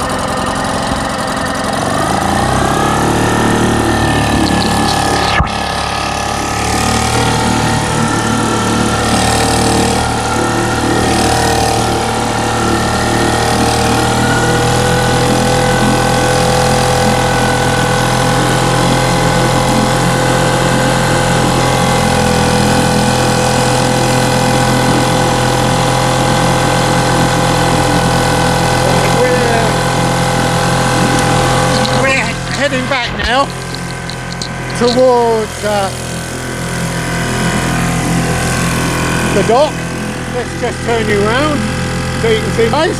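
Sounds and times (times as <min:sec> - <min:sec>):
small boat engine running: 0:00.0 - 0:42.9.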